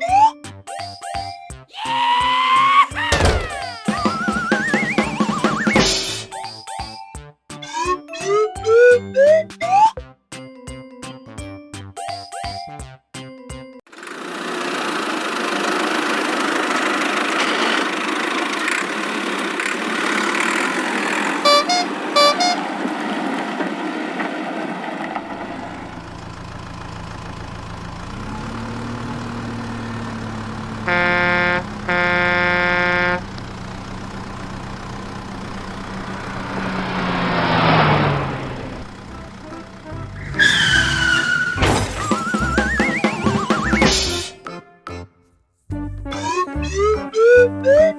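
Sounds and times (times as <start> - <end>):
vehicle engine running: 3.0 - 6.0, 14.0 - 23.5, 24.7 - 43.9
car horn honks: 3.1 - 5.2, 21.4 - 22.8, 28.6 - 41.5
vehicle passing: 14.2 - 41.6
traffic noise: 14.3 - 43.8.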